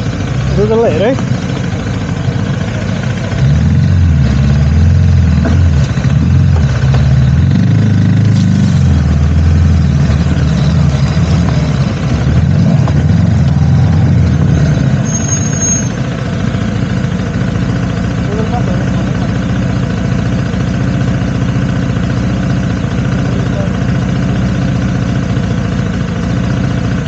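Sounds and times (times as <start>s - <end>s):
motorcycle engine running: 0.0s - 27.0s
high squeal: 13.6s - 16.2s.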